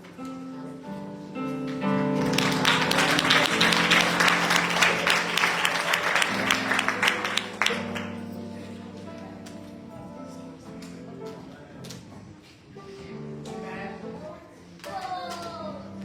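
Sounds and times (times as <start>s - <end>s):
soft instrumental music: 0.0s - 16.0s
congregation applauding: 2.2s - 8.3s.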